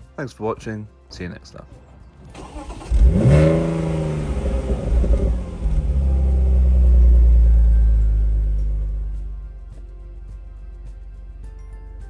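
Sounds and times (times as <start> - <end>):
car engine starting and idling: 1.8 - 9.5.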